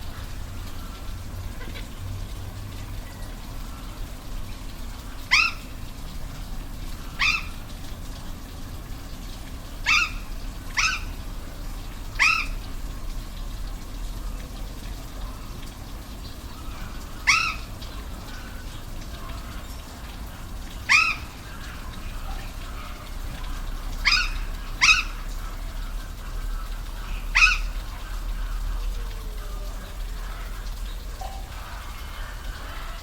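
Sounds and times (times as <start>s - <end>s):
waterfall rushing: 0.0s - 33.0s
animal calls: 5.0s - 5.7s, 7.0s - 7.7s, 9.8s - 11.2s, 12.1s - 12.6s, 16.5s - 33.0s.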